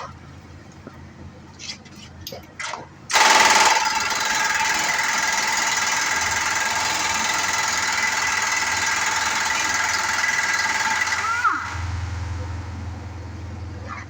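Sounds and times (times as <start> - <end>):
motor-driven machine whining: 3.2 - 13.8.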